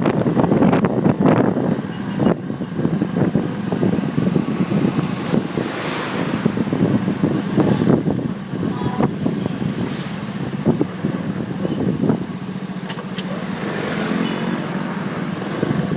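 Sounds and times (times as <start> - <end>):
wind buffeting microphone: 0.0 - 12.8
motorcycle engine hum: 0.0 - 15.9.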